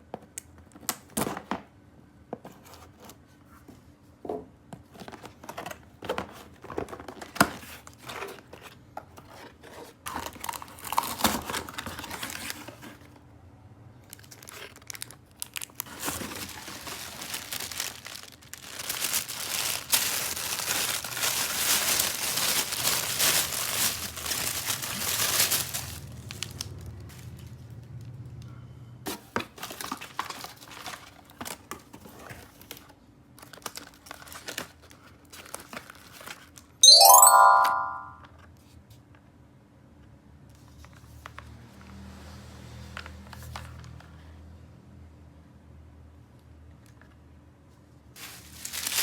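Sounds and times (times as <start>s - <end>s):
plastic packaging crinkling and tearing: 9.4s - 12.9s, 14.1s - 27.3s, 29.6s - 31.6s, 33.4s - 36.6s, 48.2s - 49.0s
toy electronic chime: 36.8s - 38.2s.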